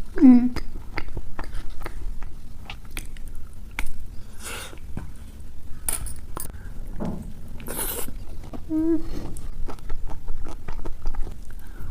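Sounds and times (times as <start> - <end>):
chewing chocolate crunchy crackles: 0.1 - 5.5, 7.6 - 11.9.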